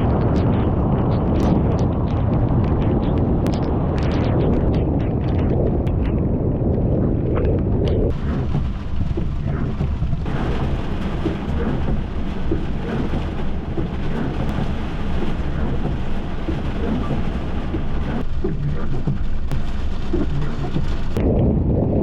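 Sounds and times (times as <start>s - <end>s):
thunder rumbling: 0.0s - 22.0s
heavy rain hissing: 8.1s - 21.2s.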